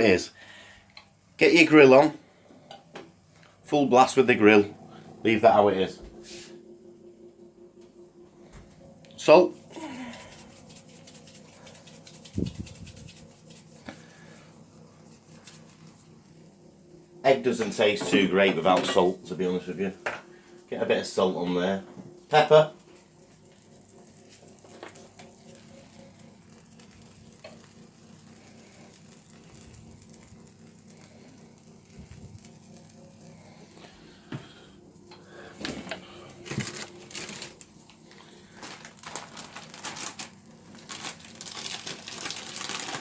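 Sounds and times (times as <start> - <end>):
low steady hum: 0.0 - 43.0
omelette cooking in frying pan: 9.2 - 16.9, 22.9 - 35.5, 36.4 - 43.0
crinkling and crackling: 22.3 - 34.6, 35.5 - 43.0.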